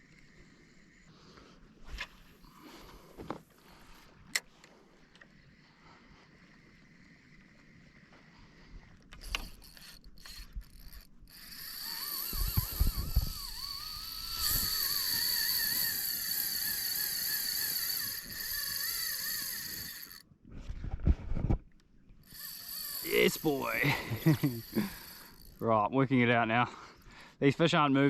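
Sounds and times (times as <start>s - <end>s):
fishing reel whirring: 0.0s - 20.3s, 22.2s - 27.2s
knocks of handling rod and reel: 1.8s - 5.6s, 6.2s - 20.2s.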